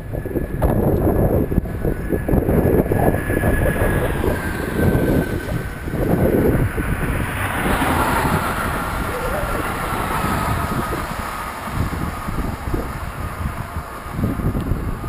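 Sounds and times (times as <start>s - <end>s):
road traffic passing: 0.0s - 15.0s
vehicle tyre noise: 0.0s - 15.0s
wind buffeting microphone: 0.0s - 15.0s.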